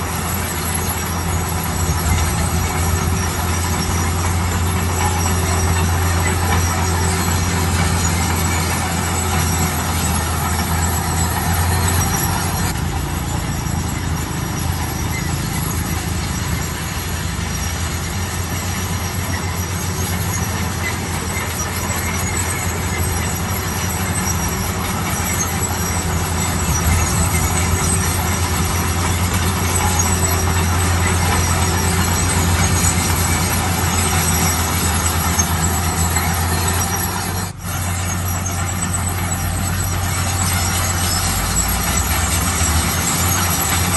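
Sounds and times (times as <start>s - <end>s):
heavy machinery engine hum: 0.0s - 43.9s
thin high squeal: 0.0s - 43.9s.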